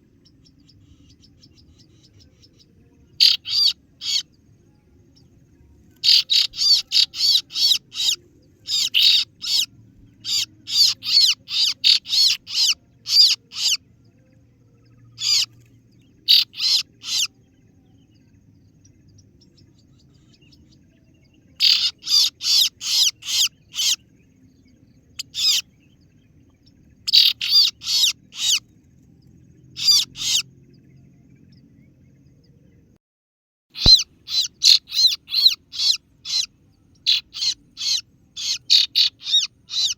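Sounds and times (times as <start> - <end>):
bird chirping sharply: 3.2 - 4.3, 6.0 - 13.8, 15.2 - 15.6, 16.3 - 17.3, 21.6 - 24.0, 25.1 - 25.7, 27.1 - 28.6, 29.8 - 30.5, 33.8 - 39.9.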